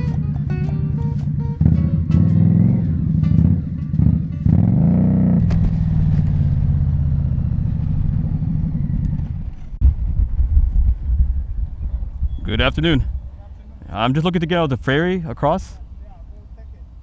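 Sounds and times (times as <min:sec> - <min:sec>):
background music: 0:00.0 - 0:05.4
motorcycle engine revving: 0:00.0 - 0:13.9, 0:15.8 - 0:17.0.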